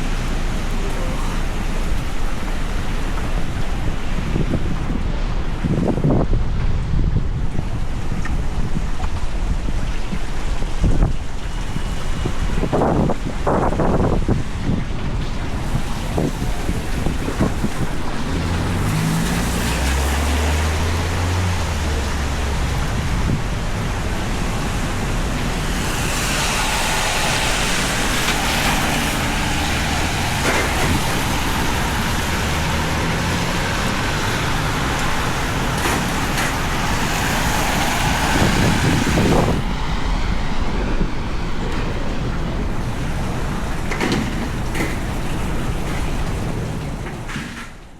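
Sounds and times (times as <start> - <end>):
heavy rain on street: 0.0 - 47.9
vehicle engine rumble: 0.0 - 47.9
vehicle passing: 15.6 - 43.9.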